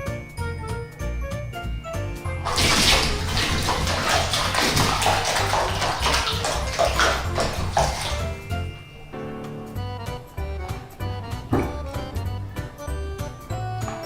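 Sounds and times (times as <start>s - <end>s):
water splashing: 2.4s - 8.8s.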